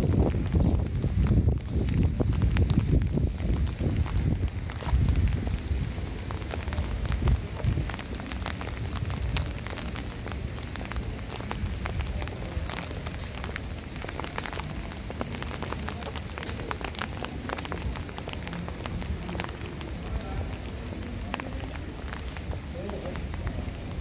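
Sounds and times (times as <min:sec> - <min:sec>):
rain hissing on wet street: 0:00.0 - 0:24.0
sharp rain drop ticks: 0:00.0 - 0:24.0.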